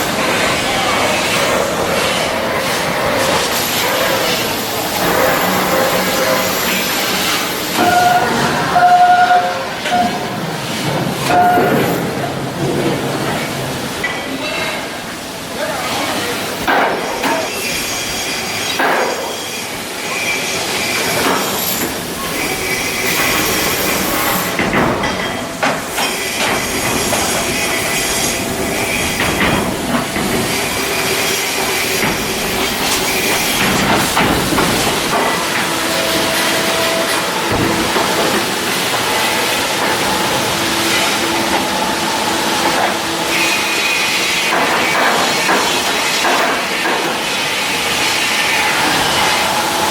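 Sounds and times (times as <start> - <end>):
metallic squeals: 3.2 - 10.3.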